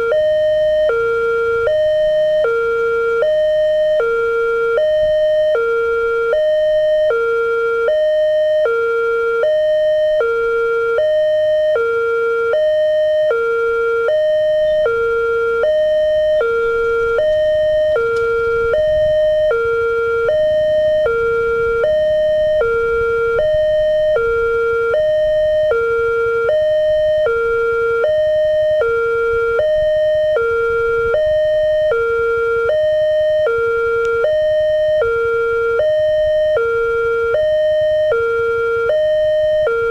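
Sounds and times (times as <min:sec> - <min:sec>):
two-tone crossing alarm: 0:00.0 - 0:39.9
faint low rumble: 0:12.4 - 0:39.9.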